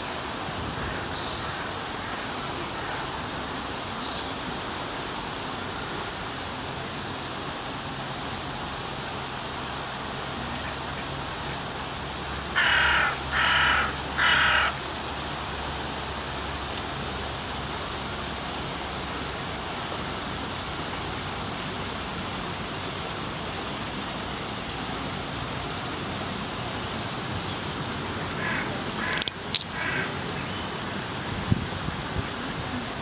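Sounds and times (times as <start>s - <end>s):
background hiss: 0.0s - 33.0s
sharp clicks: 29.0s - 29.8s.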